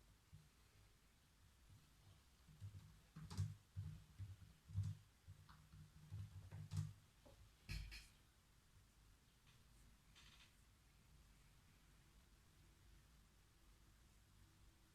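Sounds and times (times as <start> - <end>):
computer keyboard keystrokes: 6.1 - 6.9.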